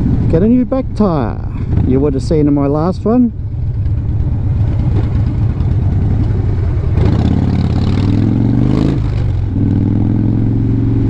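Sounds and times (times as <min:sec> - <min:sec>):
motorcycle engine revving: 0:03.3 - 0:11.0.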